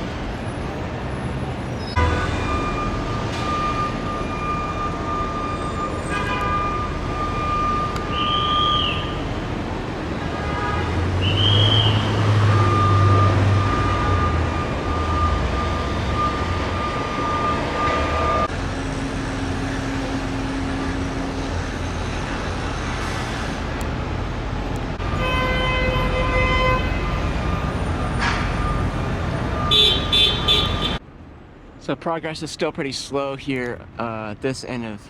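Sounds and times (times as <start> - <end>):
vehicle engines and tyre noise: 0.0 - 35.0
vehicle horn: 2.0 - 2.6, 6.0 - 6.8, 10.3 - 12.1, 25.1 - 27.2, 29.6 - 31.0.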